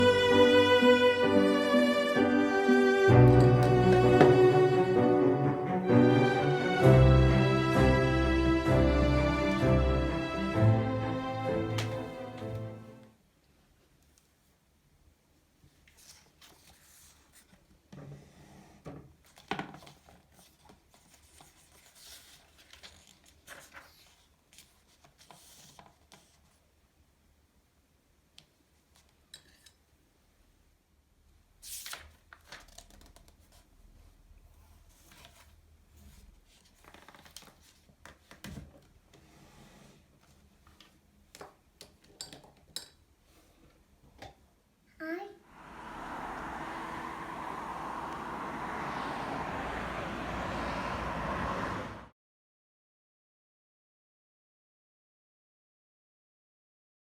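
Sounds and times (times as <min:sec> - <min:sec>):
rustling and crinkling: 0:19.2 - 0:26.7, 0:34.5 - 0:39.0.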